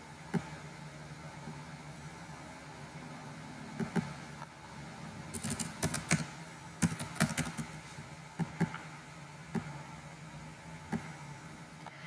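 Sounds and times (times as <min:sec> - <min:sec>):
steady low hum: 0:00.0 - 0:12.0
keyboard and mouse clicks: 0:05.4 - 0:07.7.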